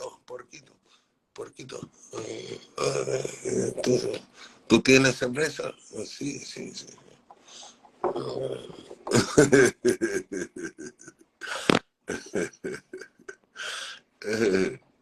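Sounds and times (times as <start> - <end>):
person's voice in broken bursts: 0.0 - 0.7, 1.4 - 14.8.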